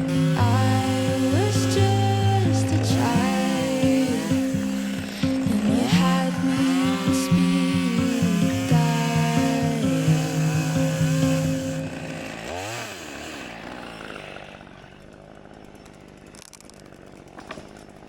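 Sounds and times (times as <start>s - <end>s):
chainsaw running: 0.0s - 18.0s.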